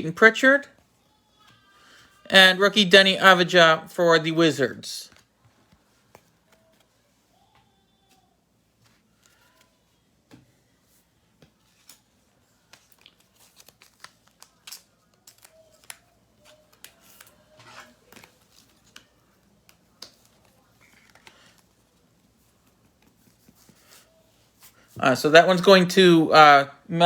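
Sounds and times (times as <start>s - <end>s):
cards and plastic sleeves handled: 5.1s - 25.8s.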